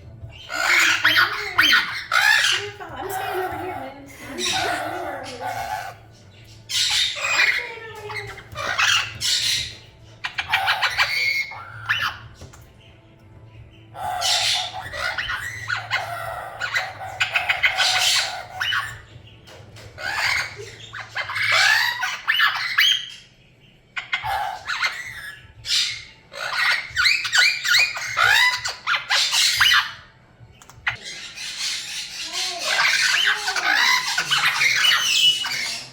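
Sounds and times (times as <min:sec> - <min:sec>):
parrots squawking and chattering: 0:00.0 - 0:35.9.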